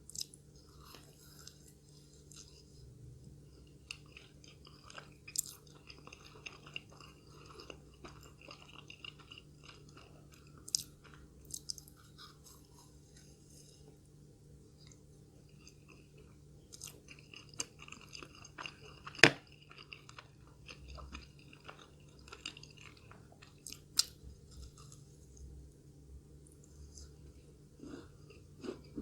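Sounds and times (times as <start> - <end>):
close-up chewing: 0.1 - 14.0, 14.7 - 25.5.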